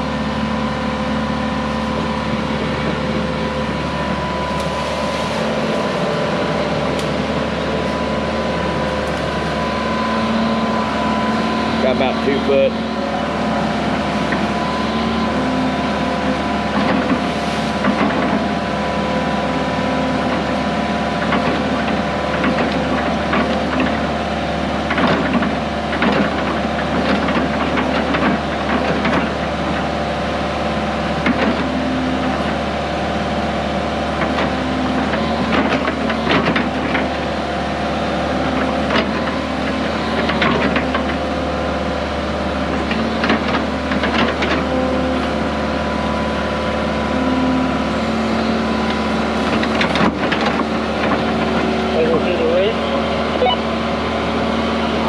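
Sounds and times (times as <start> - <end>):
diesel engine under load: 0.0 - 55.0
plow knocks and cracks in soil: 6.8 - 8.0, 16.6 - 18.7, 21.2 - 24.0, 24.8 - 30.0, 31.2 - 31.8, 34.2 - 37.3, 38.4 - 41.4, 42.6 - 45.4, 48.9 - 51.7.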